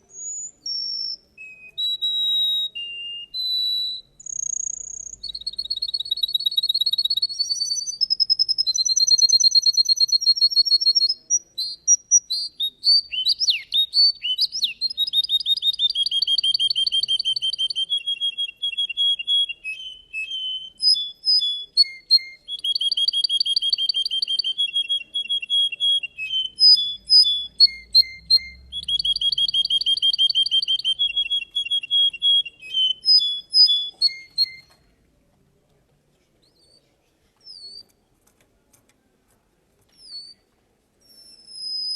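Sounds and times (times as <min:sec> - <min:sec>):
canary singing trills: 0:00.0 - 0:34.8, 0:41.0 - 0:41.9.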